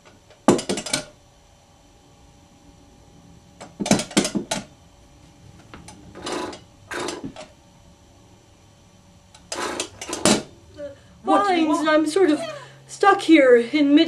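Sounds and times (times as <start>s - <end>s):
clattering knocks: 0.5s - 1.1s, 3.6s - 4.7s.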